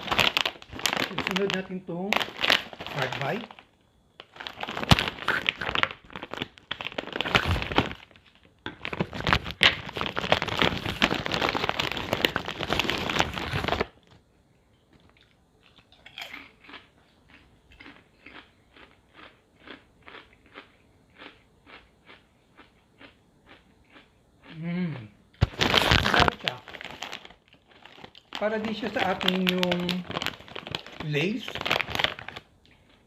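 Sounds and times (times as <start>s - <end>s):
chip bag rustling: 0.0s - 14.0s, 25.4s - 33.0s
crunchy chewing: 15.0s - 24.7s.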